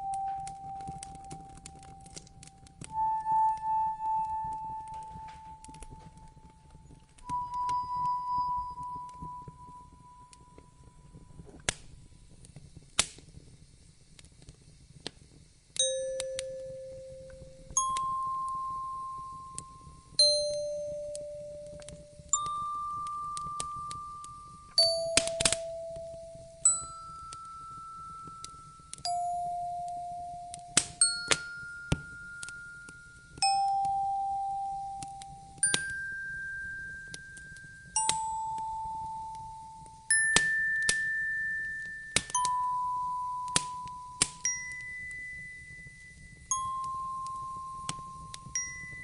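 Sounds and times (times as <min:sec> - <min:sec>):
fire pops: 0:00.0 - 0:49.0
wood fire crackling: 0:00.0 - 0:49.0
ringing bell-like tone: 0:02.9 - 0:11.5, 0:15.8 - 0:49.0.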